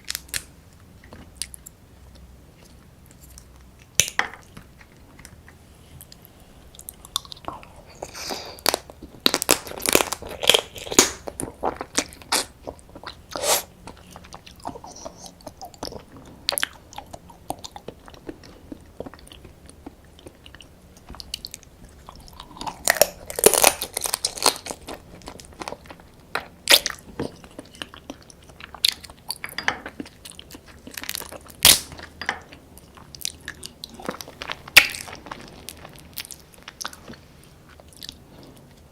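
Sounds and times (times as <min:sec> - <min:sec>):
crunching crab shell bites: 0:08.4 - 0:12.5, 0:22.3 - 0:27.3.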